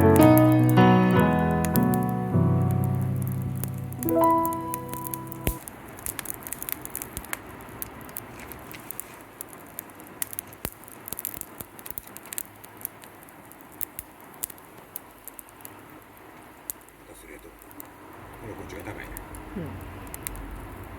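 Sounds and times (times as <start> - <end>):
fire hissing: 0.0 - 20.9
wood fire crackling and popping: 0.0 - 20.9.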